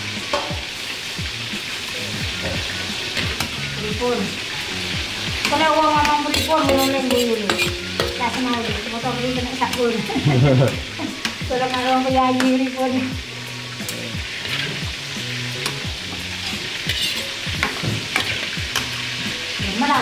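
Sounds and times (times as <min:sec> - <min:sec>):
food sizzling in a pan: 0:00.0 - 0:20.0
utensil clicking against pan: 0:03.2 - 0:03.6, 0:05.4 - 0:08.7, 0:09.6 - 0:12.8, 0:13.8 - 0:14.8, 0:15.6 - 0:19.2.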